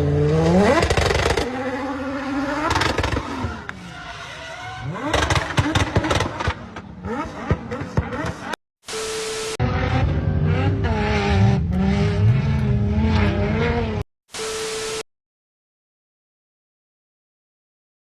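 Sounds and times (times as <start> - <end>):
vehicle engine revving: 0.0 - 8.6, 9.6 - 14.1.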